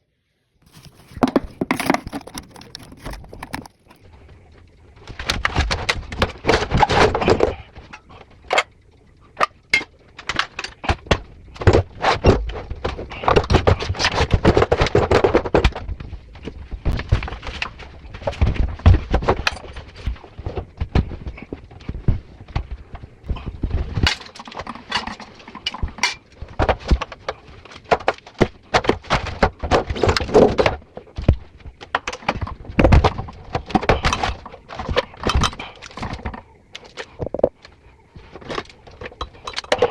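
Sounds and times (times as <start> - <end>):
tools knocking and clattering: 0.7 - 4.0.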